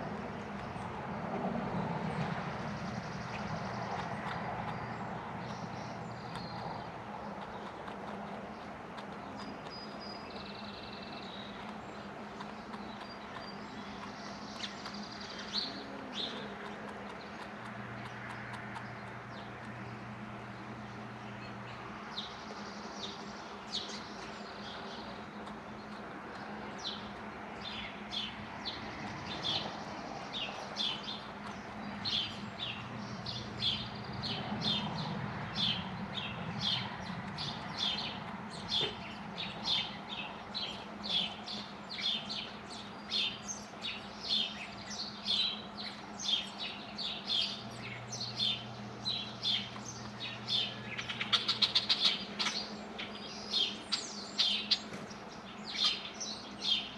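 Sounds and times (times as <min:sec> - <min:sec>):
small bird chirping: 0:02.8 - 0:56.9.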